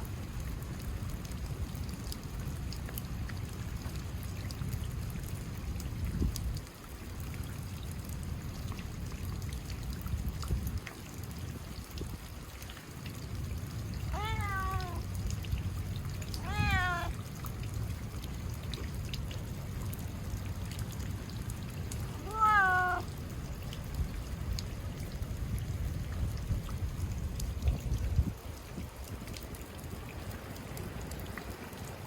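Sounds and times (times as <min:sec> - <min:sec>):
steady rain: 0:00.0 - 0:32.0
cat meowing: 0:14.1 - 0:15.1, 0:16.2 - 0:17.2, 0:22.2 - 0:23.1.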